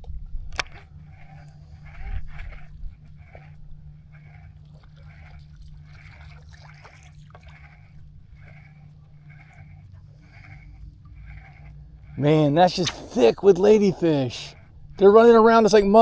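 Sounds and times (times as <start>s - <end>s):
steady low hum: 0.0s - 16.0s
animal nasal calls: 8.4s - 14.7s.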